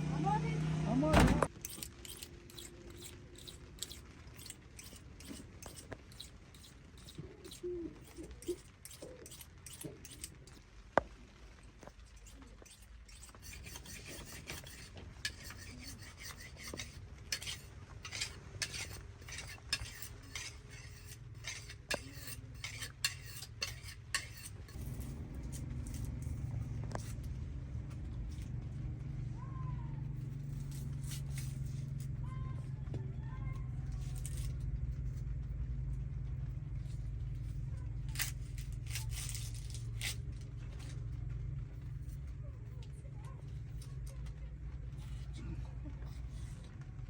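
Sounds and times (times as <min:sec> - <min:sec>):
metal utensil scraping cookware: 0:01.6 - 0:10.6, 0:12.1 - 0:27.2.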